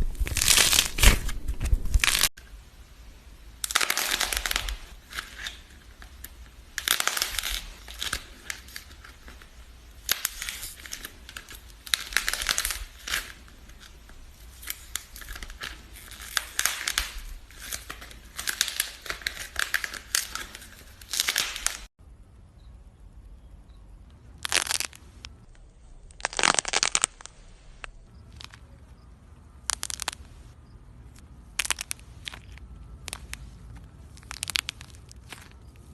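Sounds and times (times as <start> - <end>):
crinkling being handled: 3.6 - 21.9, 24.4 - 25.3, 26.1 - 28.9, 29.6 - 30.4, 31.1 - 35.9.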